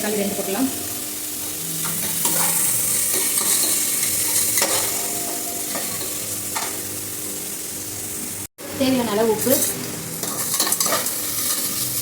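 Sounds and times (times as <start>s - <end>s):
vegetables sizzling in oil: 0.0s - 12.0s
spoon scraping a pan: 1.8s - 5.0s, 9.6s - 12.0s.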